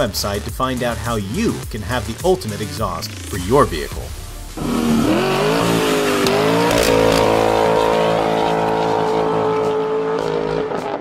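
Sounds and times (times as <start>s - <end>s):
car engine at high revs: 4.6s - 11.0s.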